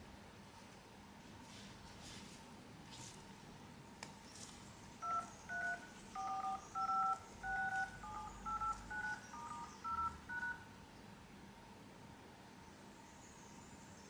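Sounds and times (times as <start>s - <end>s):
phone keypad dial tones: 5.0s - 10.7s.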